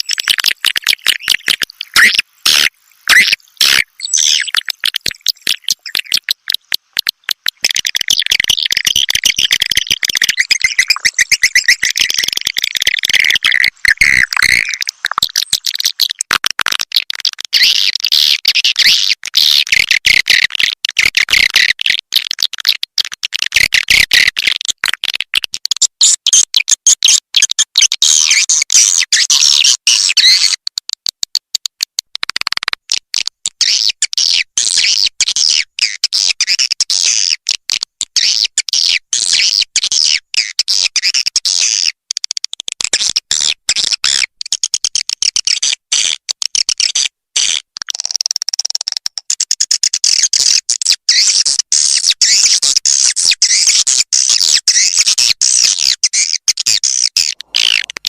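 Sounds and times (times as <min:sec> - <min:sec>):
swiftlets twittering and chirping: 0:00.0 - 0:16.3, 0:53.2 - 0:58.0.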